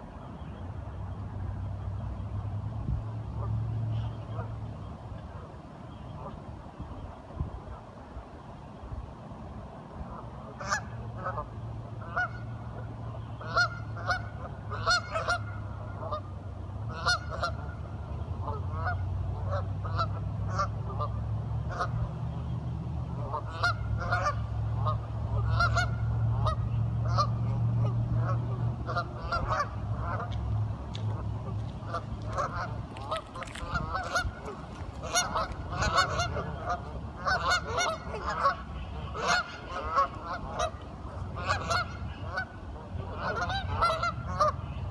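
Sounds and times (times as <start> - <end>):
ducks calling: 10.6 - 16.2, 16.9 - 17.8, 23.2 - 27.3, 28.2 - 44.9.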